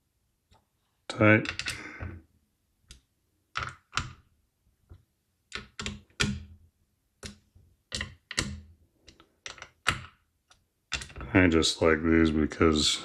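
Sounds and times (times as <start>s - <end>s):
small parts and tools clicking: 1.4s - 2.0s, 2.9s - 4.2s, 5.5s - 6.4s, 7.2s - 11.2s.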